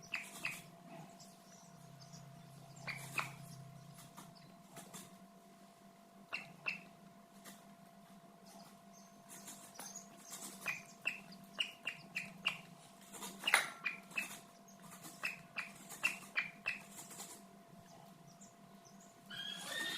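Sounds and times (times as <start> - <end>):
faint steady hum: 0.0 - 19.9
bird giving sharp calls: 2.7 - 3.6, 6.3 - 6.9, 9.8 - 12.7, 19.3 - 19.9.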